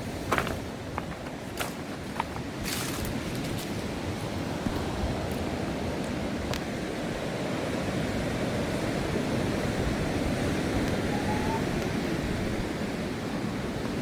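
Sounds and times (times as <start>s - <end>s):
water rushing: 5.5s - 14.0s.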